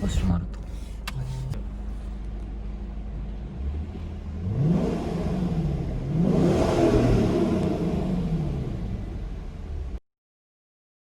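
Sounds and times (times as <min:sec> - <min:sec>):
car engine revving: 0:02.7 - 0:10.0.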